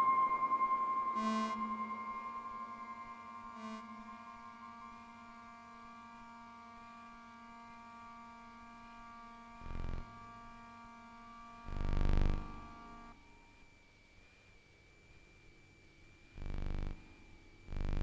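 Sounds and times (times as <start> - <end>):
synthesizer drone: 0.0 - 13.2.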